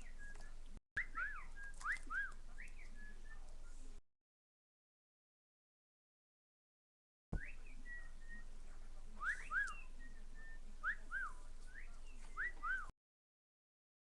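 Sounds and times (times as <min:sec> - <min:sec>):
cockatiel whistling: 0:00.0 - 0:03.4, 0:07.4 - 0:08.4, 0:09.2 - 0:12.9.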